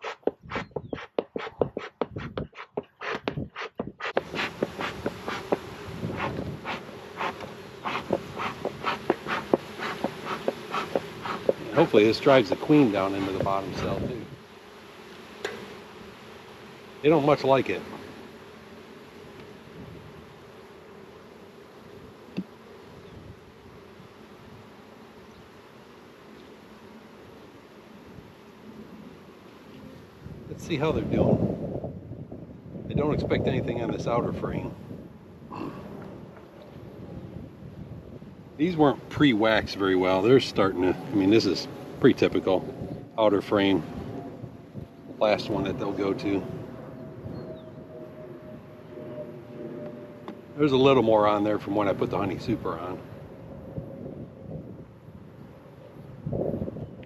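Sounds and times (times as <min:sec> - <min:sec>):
short puffs of hive smoker: 0:00.0 - 0:30.5, 0:34.6 - 0:37.0
honeybees buzzing: 0:00.0 - 0:57.0.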